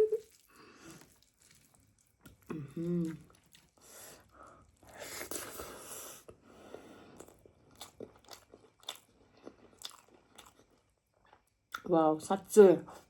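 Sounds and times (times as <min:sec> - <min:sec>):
chewing and biting food: 0:00.2 - 0:03.8, 0:07.2 - 0:11.8.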